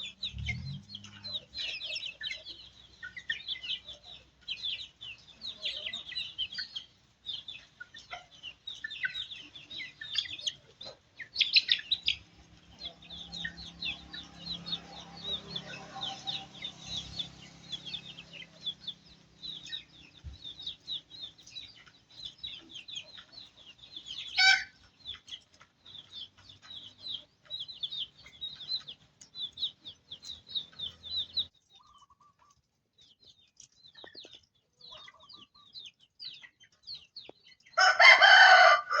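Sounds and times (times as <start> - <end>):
chicks peeping: 0.0 - 39.0
chicken squawk: 24.3 - 24.8.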